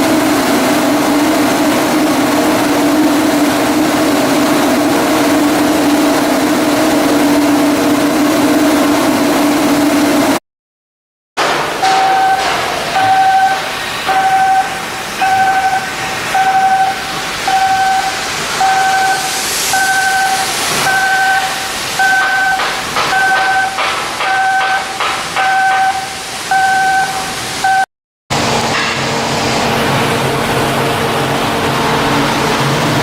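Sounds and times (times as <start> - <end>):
worksite background noise: 11.4 - 33.0
electronic warning beeper: 11.9 - 27.9.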